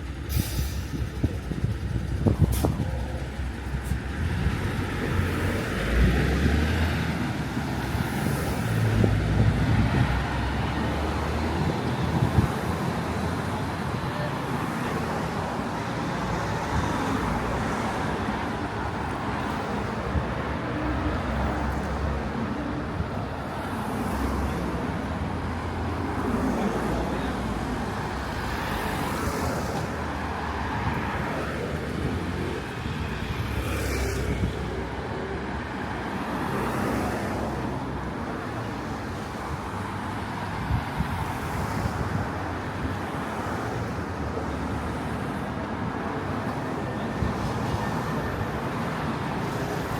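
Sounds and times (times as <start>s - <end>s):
road traffic rumble: 0.0s - 49.9s.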